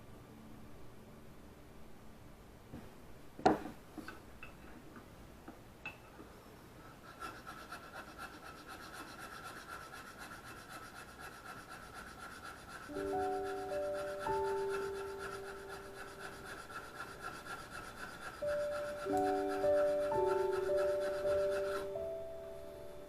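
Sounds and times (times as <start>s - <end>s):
plane blade rubbing on abrasive: 6.9s - 22.0s.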